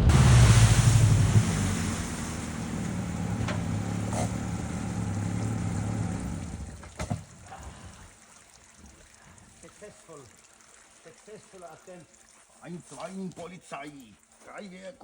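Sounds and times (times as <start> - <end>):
car engine running: 0.0 - 6.9.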